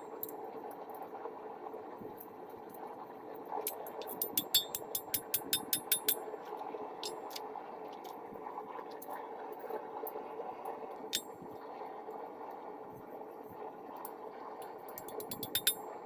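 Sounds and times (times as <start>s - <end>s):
forge burner roaring: 0.0s - 16.0s
hammer ringing on hot steel: 4.2s - 6.2s, 15.3s - 15.9s.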